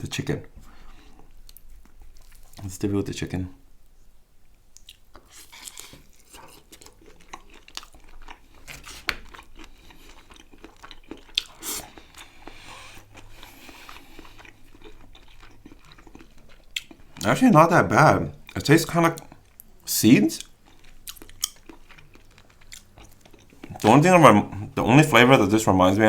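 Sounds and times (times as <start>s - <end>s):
person chewing food: 0.8s - 2.6s, 4.5s - 17.4s, 19.2s - 24.7s.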